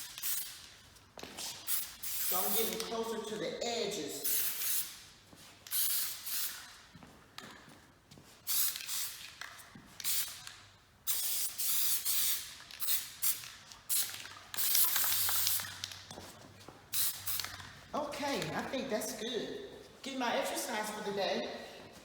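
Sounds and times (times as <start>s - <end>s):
spray adhesive hissing: 1.4s - 2.9s, 4.2s - 5.0s, 5.6s - 6.9s, 8.4s - 9.4s, 10.0s - 10.5s, 11.1s - 16.0s, 16.9s - 17.7s.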